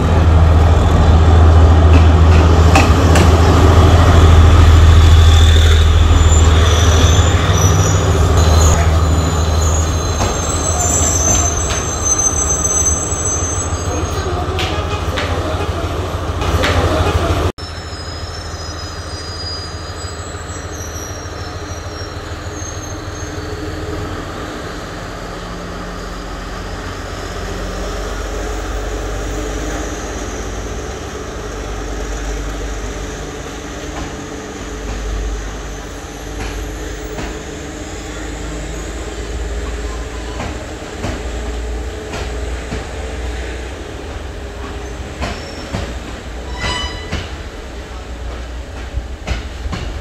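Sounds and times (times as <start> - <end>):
train wheels rumbling: 0.0 - 50.0
faint high wheel squeal: 5.0 - 14.4, 17.6 - 24.0, 44.8 - 47.4.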